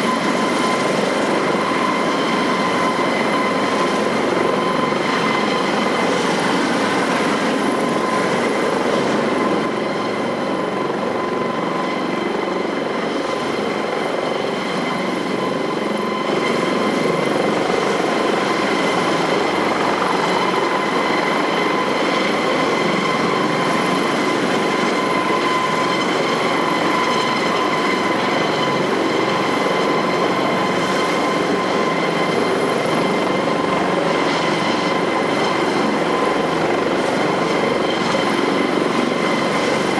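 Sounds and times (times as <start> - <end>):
helicopter rushing noise: 0.0 - 39.9
helicopter turbine whine: 0.0 - 39.9.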